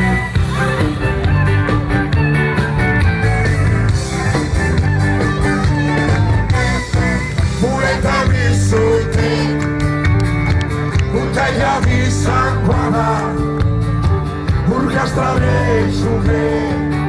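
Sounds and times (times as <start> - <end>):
live band playing: 0.0 - 17.0
person singing: 5.7 - 9.6, 11.1 - 13.6, 14.6 - 17.0.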